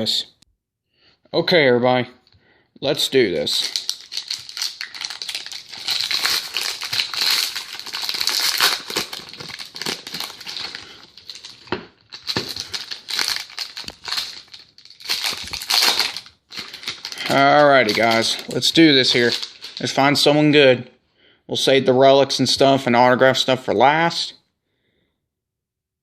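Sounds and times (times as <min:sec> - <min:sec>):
foil wrapper crinkling: 0:03.5 - 0:20.1.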